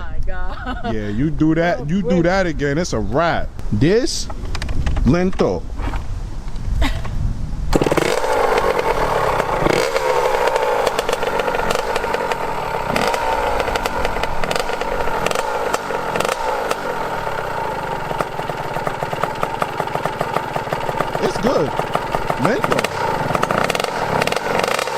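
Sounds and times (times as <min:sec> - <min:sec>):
dirt bike engine revving: 0:07.7 - 0:24.9.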